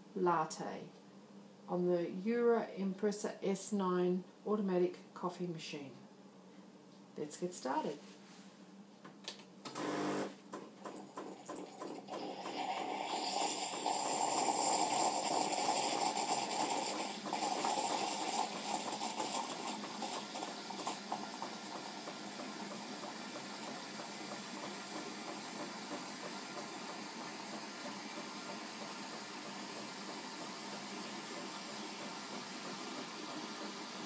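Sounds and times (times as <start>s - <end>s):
coffee machine frothing milk: 9.8s - 34.0s.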